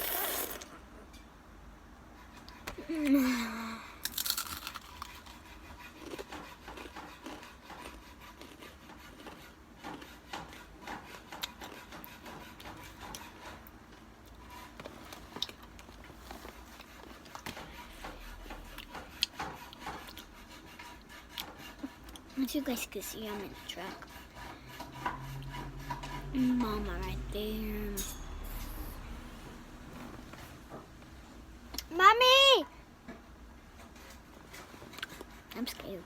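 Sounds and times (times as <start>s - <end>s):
chips crunching while eaten: 4.0s - 5.4s.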